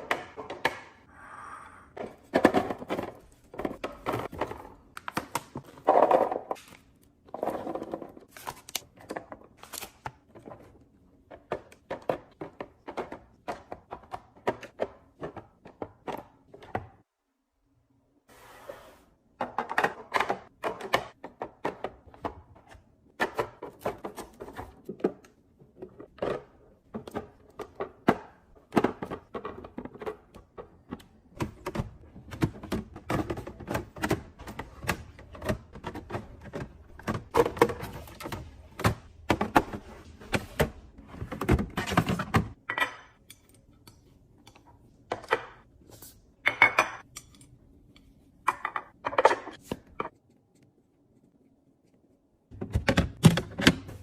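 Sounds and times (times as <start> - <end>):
bottles and containers knocking and clinking: 46.4 - 47.1.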